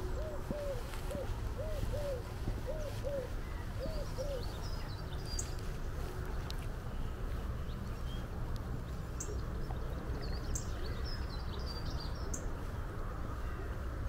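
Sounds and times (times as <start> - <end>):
small songbirds chirping: 0.0 - 6.1, 6.9 - 13.8
low outdoor background noise: 0.0 - 14.0.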